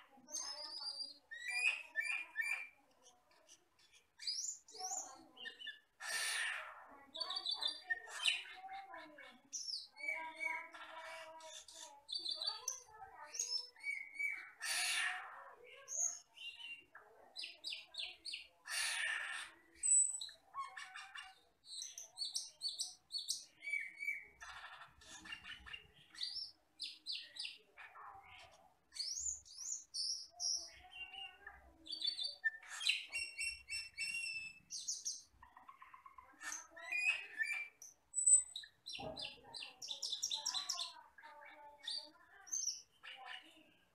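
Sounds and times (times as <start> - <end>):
starling chirps and whistles: 0.7 - 2.8, 13.4 - 15.2, 21.6 - 24.4, 31.9 - 35.4, 36.6 - 41.0.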